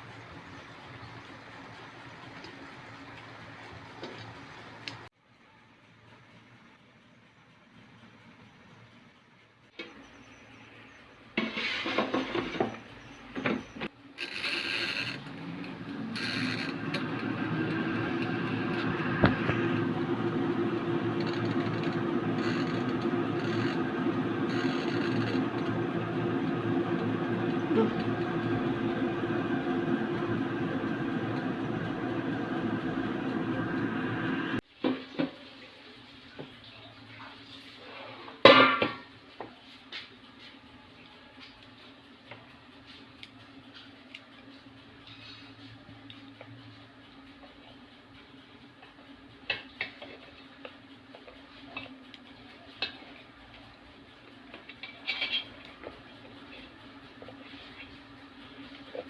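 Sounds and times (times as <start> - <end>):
steady low hum: 0.0 - 34.7
air fryer fan whirring: 0.0 - 59.0
kitchen utensils clinking: 54.6 - 55.6.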